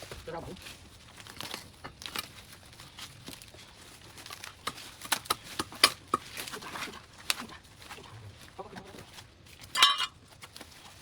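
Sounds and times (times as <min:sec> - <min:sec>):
dry vines crackling and snapping: 0:00.0 - 0:11.0.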